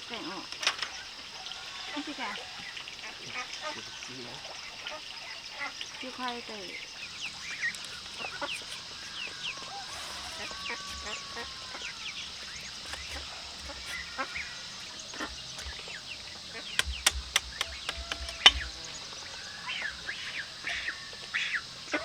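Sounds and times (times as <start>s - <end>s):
high-pitched hiss: 6.1s - 22.0s
chicks peeping: 7.2s - 18.8s
sharp knocks: 15.2s - 16.0s, 16.7s - 18.8s.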